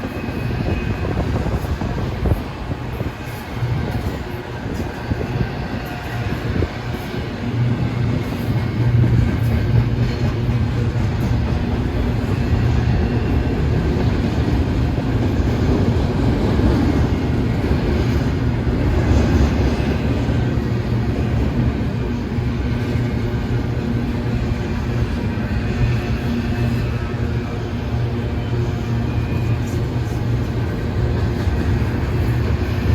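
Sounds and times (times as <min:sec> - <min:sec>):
freight train rumbling past: 0:00.0 - 0:32.9.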